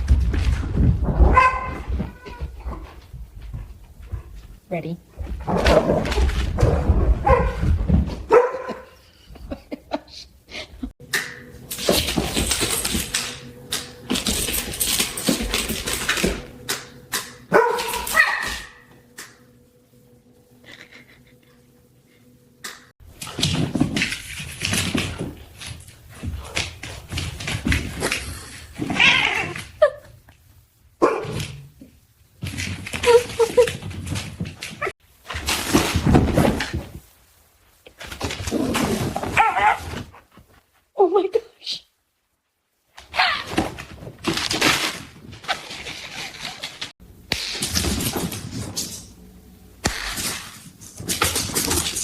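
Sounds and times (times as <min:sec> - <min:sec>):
dog barking: 0:01.3 - 0:01.8, 0:07.2 - 0:07.6, 0:08.3 - 0:08.9, 0:17.5 - 0:18.8, 0:31.0 - 0:31.4.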